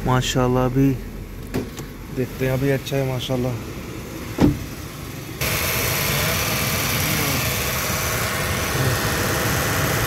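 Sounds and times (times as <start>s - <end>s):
car engine idling: 0.0s - 10.0s
car door shutting: 4.3s - 4.8s.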